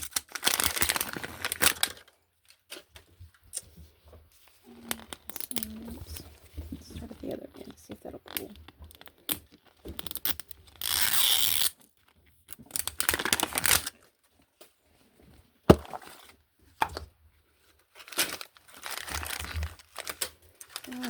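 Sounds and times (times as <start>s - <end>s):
plastic wrapping tearing: 0.0s - 3.0s, 4.6s - 6.4s, 7.7s - 14.2s, 17.8s - 21.0s
plastic crinkling: 0.0s - 14.7s, 15.7s - 21.0s.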